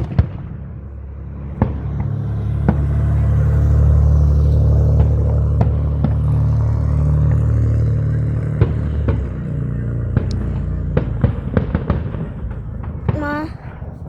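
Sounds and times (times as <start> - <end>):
fireworks cracks: 8.6 - 14.0.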